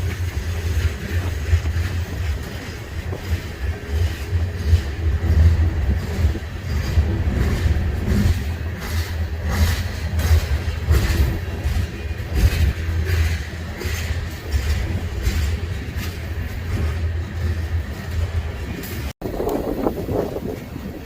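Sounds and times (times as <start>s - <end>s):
freight train rumbling past: 0.0s - 21.0s
wheels clacking: 0.0s - 21.0s.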